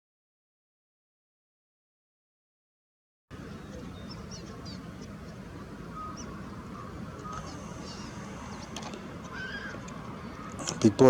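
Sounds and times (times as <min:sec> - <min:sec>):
faint bird chirps: 0:03.3 - 0:11.0
low outdoor rumble: 0:03.3 - 0:11.0
short bird calls: 0:03.3 - 0:11.0.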